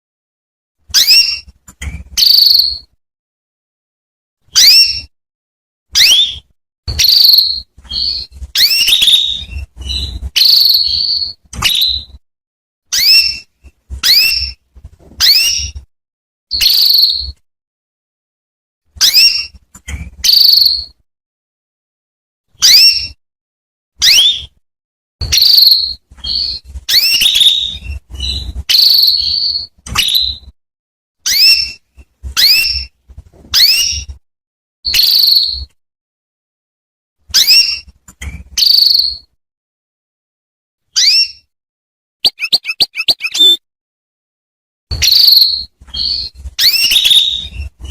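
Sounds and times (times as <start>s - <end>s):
canary chirping and trilling: 0.8s - 3.0s, 4.4s - 5.2s, 5.9s - 12.2s, 12.9s - 15.9s, 16.5s - 17.4s, 18.9s - 21.0s, 22.5s - 23.2s, 24.0s - 24.6s, 25.2s - 30.6s, 31.2s - 34.2s, 34.9s - 35.8s, 37.3s - 39.4s, 40.9s - 41.6s, 42.2s - 43.6s, 44.9s - 47.9s.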